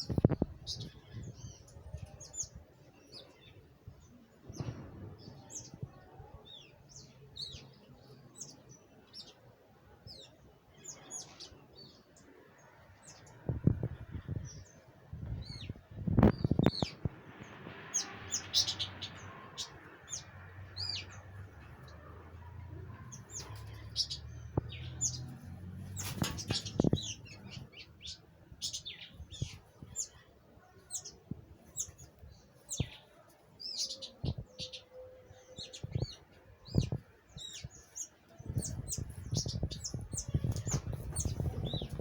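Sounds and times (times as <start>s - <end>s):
small birds chirping sharply: 0.0s - 9.4s, 10.1s - 42.0s
wings fluttering thumps: 25.7s - 27.4s.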